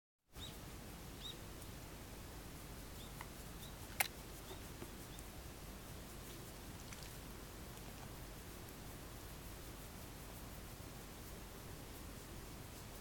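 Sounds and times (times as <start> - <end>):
faint high chirps: 0.3 - 1.5, 2.9 - 5.3
sharp click: 3.9 - 4.2.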